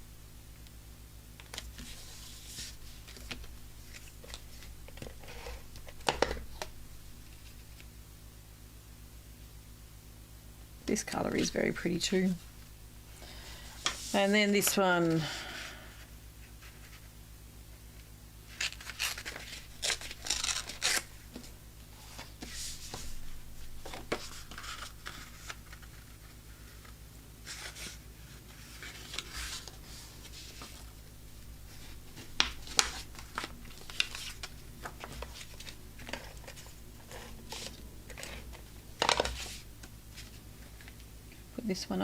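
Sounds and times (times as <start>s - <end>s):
paper rustling and sliding: 1.5s - 6.0s, 13.6s - 17.2s, 18.5s - 30.9s, 31.6s - 41.0s.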